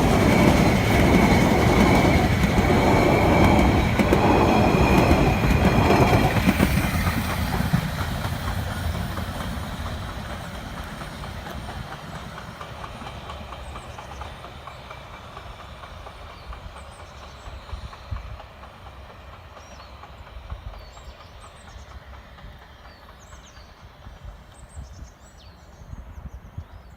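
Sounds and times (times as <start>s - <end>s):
high wheel squeal: 0.0s - 6.8s
steam train wheels clacking: 0.0s - 26.6s.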